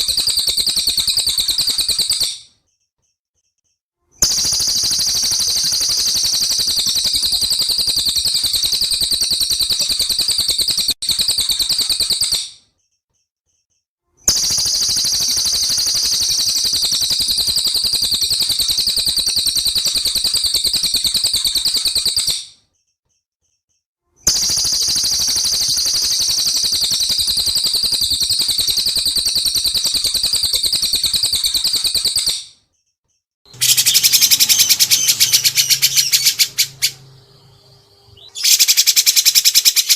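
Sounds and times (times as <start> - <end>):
songbird rapid high trill: 33.5 - 39.9.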